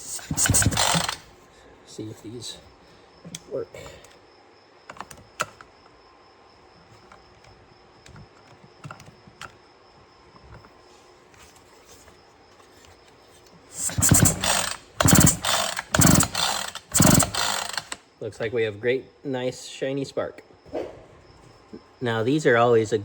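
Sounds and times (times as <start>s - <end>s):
chainsaw recoil starter pulled: 0.0s - 1.3s, 13.7s - 18.0s
two-stroke engine turning over: 0.0s - 1.3s, 13.7s - 18.0s.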